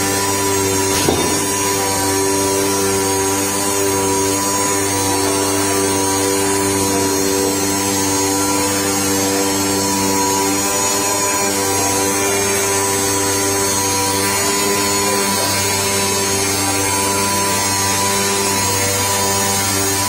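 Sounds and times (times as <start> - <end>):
cutting machine humming: 0.0 - 20.0
brief knock: 0.9 - 1.6.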